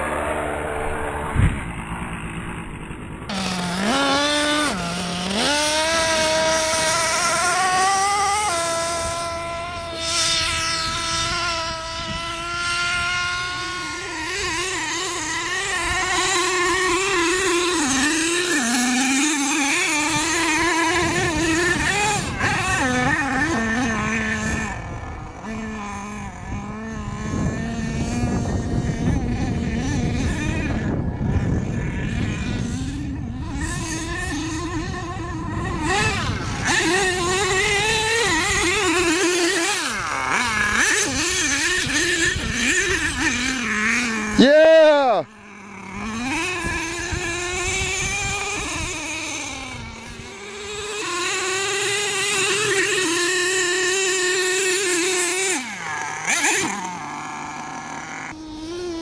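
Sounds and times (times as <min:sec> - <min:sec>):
low rumble of noise: 0:00.0 - 0:03.8
small two-stroke engines revving: 0:00.0 - 0:59.0.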